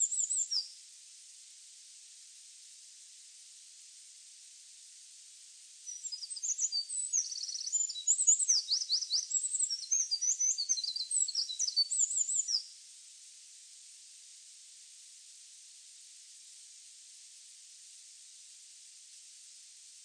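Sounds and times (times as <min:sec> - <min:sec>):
songbird singing trills: 0:00.0 - 0:00.7, 0:05.9 - 0:12.7
steady hiss: 0:00.0 - 0:20.0.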